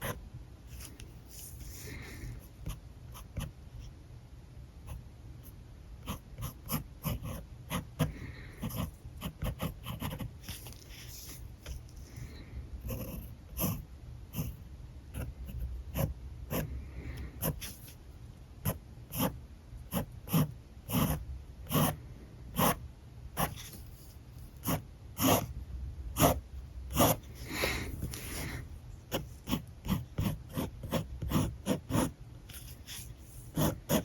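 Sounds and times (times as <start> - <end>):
marker scratching on paper: 6.0 - 11.8, 18.6 - 22.8, 23.4 - 25.5, 26.2 - 34.0.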